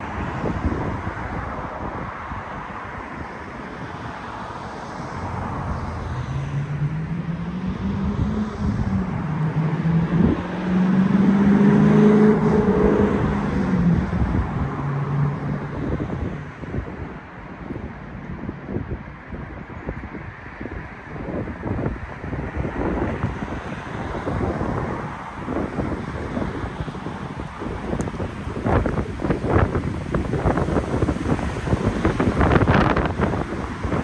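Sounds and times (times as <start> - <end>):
vehicle engine hum: 0.0 - 34.0
steady rumbling noise: 13.2 - 34.0.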